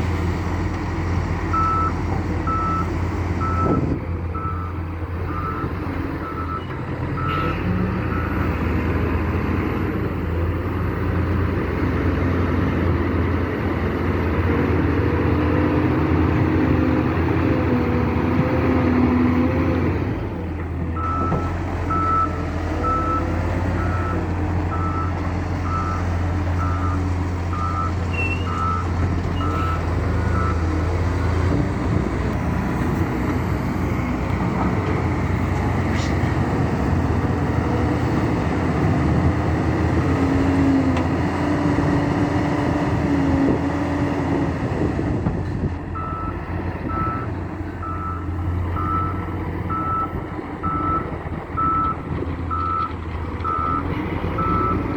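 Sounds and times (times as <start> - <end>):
diesel construction machine running: 0.0 - 54.9
reversing alarm beeping: 1.5 - 7.4, 21.0 - 30.8, 46.0 - 53.8.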